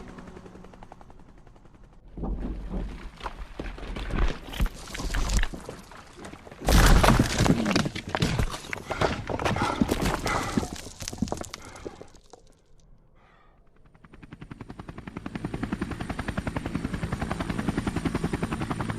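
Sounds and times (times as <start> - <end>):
helicopter rotor beat: 0.0 - 2.1, 13.6 - 18.9.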